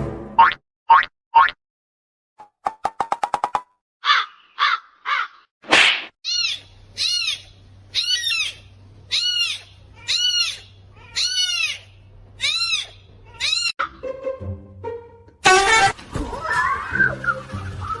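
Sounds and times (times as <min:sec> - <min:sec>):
music: 0:00.0 - 0:00.4, 0:13.8 - 0:18.0
bird calling: 0:04.0 - 0:05.5.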